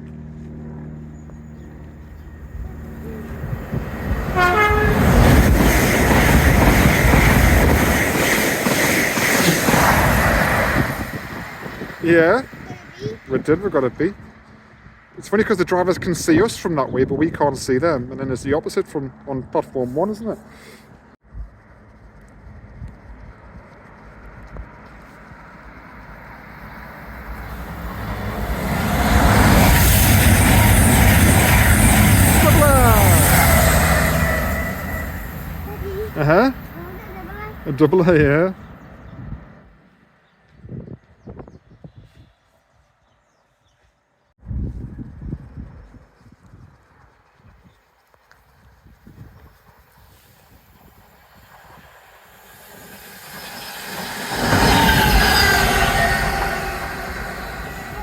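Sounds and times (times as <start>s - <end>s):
train engine hum: 0.0s - 15.0s, 19.1s - 39.8s, 46.8s - 58.0s
train passing rush: 1.7s - 16.6s, 20.4s - 40.2s, 48.0s - 58.0s
train horn blast: 4.2s - 5.5s, 31.8s - 36.3s, 54.4s - 58.0s.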